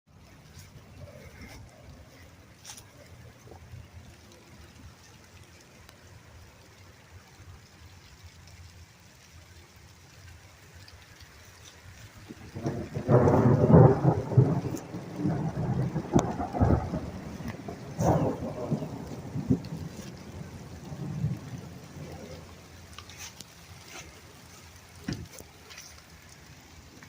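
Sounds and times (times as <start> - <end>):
steady rain: 0.1 - 27.0
thunder clap rolling: 12.2 - 23.0.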